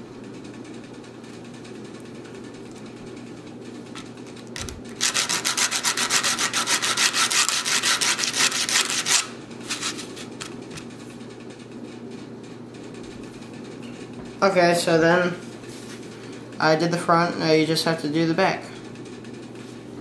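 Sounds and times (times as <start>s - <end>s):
sandpaper rubbing on metal: 5.0s - 10.2s.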